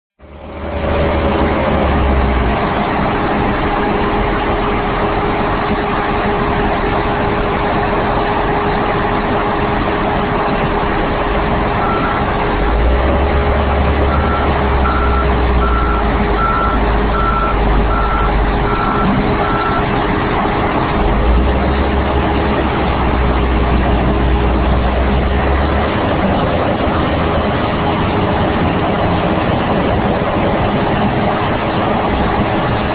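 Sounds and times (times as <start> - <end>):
constant machine whine: 0.2 - 32.9
large diesel engine running: 0.2 - 32.9
backup alarm beeping: 11.8 - 12.3, 14.1 - 19.9.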